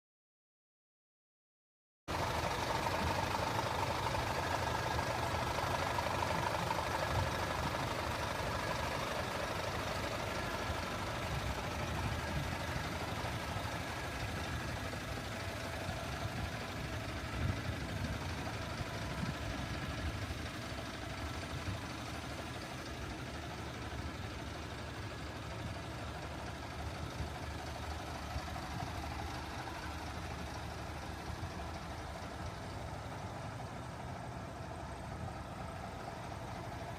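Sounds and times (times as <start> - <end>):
truck diesel engine idling: 2.1 - 36.9.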